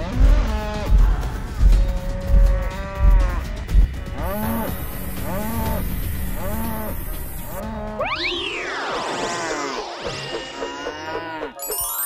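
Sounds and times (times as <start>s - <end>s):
cartoon buffaloes mooing: 1.9s - 8.2s.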